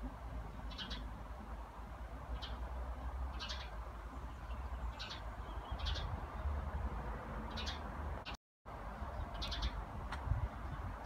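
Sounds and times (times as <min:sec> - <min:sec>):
small bird chirping: 0:03.3 - 0:06.2, 0:09.2 - 0:09.8
wind rumble on microphone: 0:05.4 - 0:07.1, 0:08.7 - 0:11.0.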